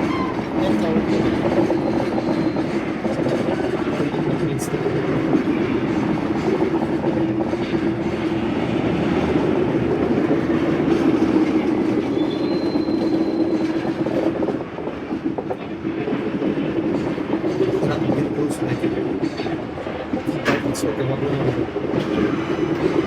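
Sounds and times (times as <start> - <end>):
train wheels clattering: 0.0 - 23.0.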